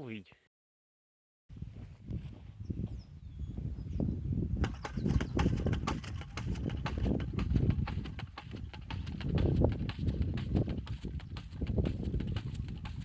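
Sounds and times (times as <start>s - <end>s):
bird chirping: 2.6s - 5.8s
corn planter clacking: 4.6s - 13.0s.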